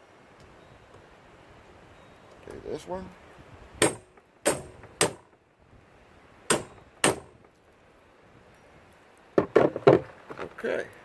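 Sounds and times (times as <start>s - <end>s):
hammer striking metal impact driver: 3.8s - 5.2s, 6.5s - 7.4s.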